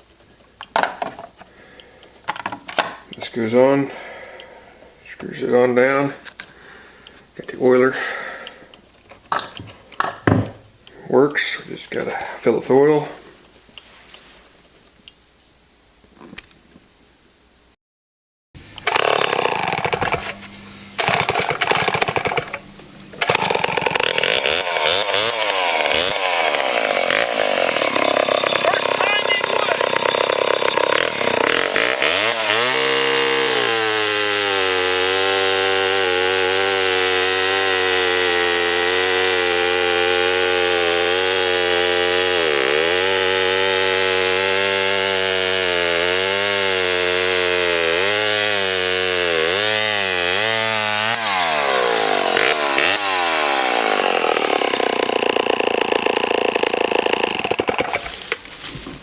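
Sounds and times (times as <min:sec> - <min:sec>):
chainsaw cutting wood: 0:18.7 - 0:58.5.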